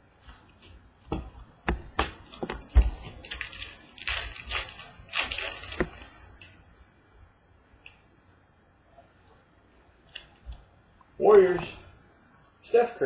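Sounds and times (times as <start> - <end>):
wrappers crinkling: 2.3 - 6.6.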